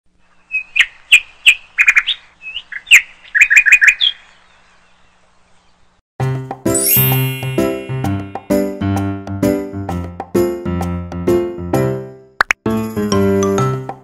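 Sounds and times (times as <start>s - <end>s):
bird chirping: 0.2s - 6.0s
music jingle with chimes: 6.7s - 9.0s.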